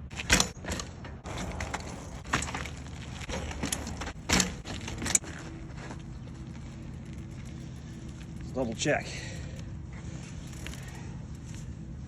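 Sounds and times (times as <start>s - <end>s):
bike frame clunks and knocks: 0.1s - 6.0s
low rumble: 0.8s - 12.0s.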